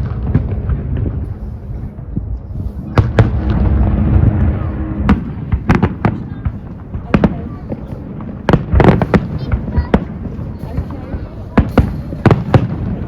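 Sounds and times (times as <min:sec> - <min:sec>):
low rumble: 0:00.0 - 0:08.6
fireworks sharp bangs: 0:00.0 - 0:13.0.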